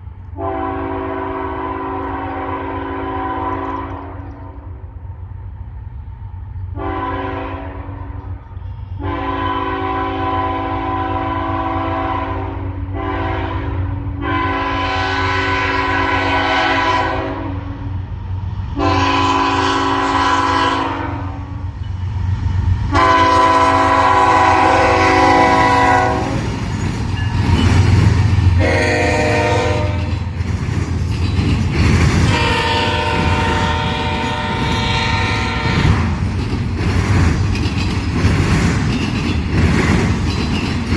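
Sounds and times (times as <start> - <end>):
passing train rumble: 0.0 - 40.9
locomotive air horn blasts: 0.4 - 4.5, 6.8 - 8.3, 9.0 - 17.9, 18.8 - 21.6, 22.9 - 26.5, 28.6 - 30.2, 32.3 - 36.2.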